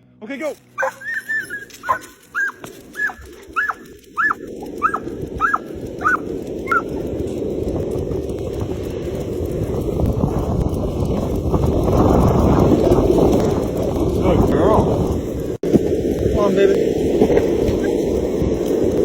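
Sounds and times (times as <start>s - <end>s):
dog yipping: 0.8s - 7.0s
wind on microphone: 0.8s - 19.0s.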